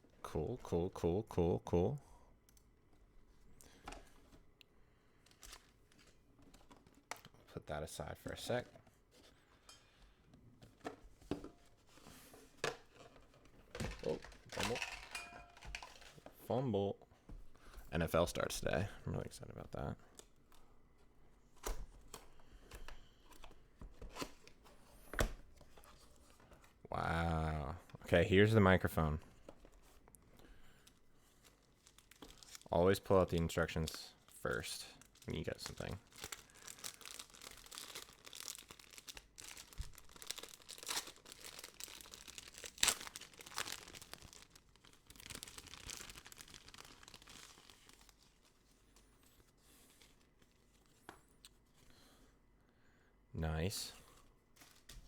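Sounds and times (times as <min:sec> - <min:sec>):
paper and plastic crinkling: 0:11.7 - 0:16.4, 0:29.4 - 0:51.1, 0:54.1 - 0:55.0
cardboard packaging handled: 0:30.9 - 0:32.7, 0:35.0 - 0:50.9.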